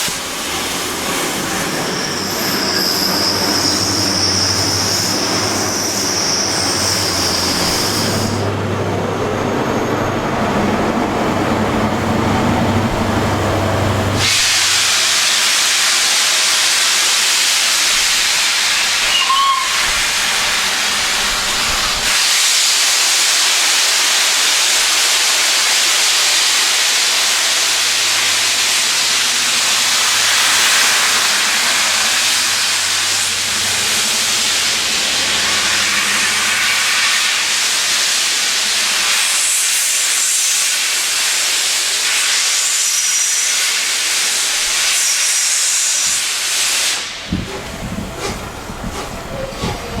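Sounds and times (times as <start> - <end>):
steam blowing off hiss: 0.0 - 8.6, 11.7 - 50.0
high squeal: 1.0 - 8.4, 19.0 - 20.1.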